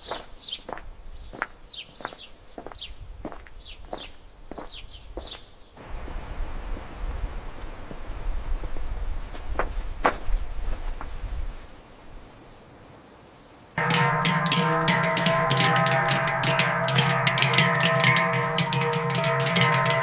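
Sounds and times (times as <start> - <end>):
cricket trilling: 5.8 - 13.8
music with drums: 13.8 - 20.0.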